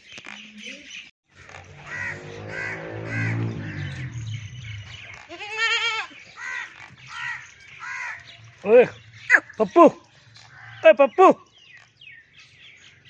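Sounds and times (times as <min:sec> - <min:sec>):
birds chirping: 0:00.0 - 0:13.0
goats bleating: 0:05.2 - 0:08.2.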